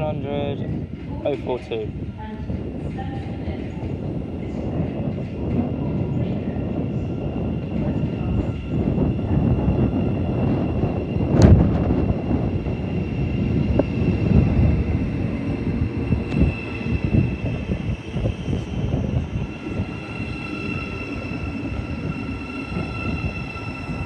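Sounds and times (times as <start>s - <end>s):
train traction whine: 0.0s - 24.0s
wind buffeting microphone: 0.0s - 24.0s
lower whine: 7.0s - 24.0s.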